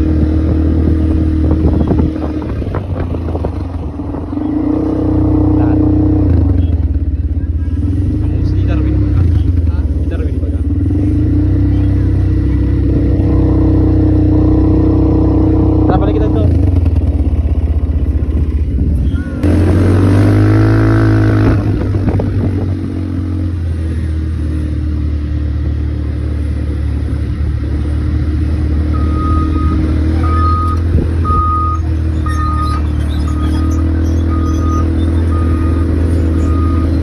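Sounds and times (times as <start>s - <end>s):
atv engine running: 0.0s - 37.0s
short electronic beep: 19.0s - 19.6s, 29.0s - 37.0s.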